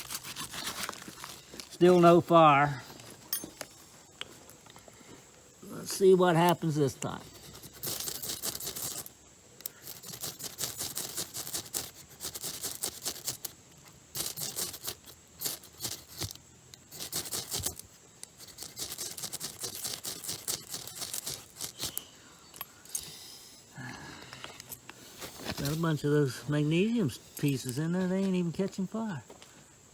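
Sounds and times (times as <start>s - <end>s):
striker scraping fire starter: 6.0s - 23.2s, 27.2s - 28.0s.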